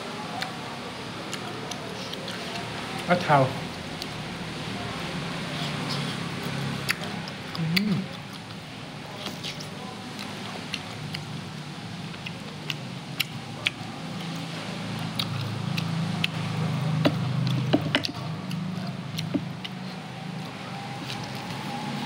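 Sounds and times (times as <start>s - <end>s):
chewing clicks and smacks: 1.3s - 3.1s, 6.8s - 11.3s, 12.0s - 21.6s.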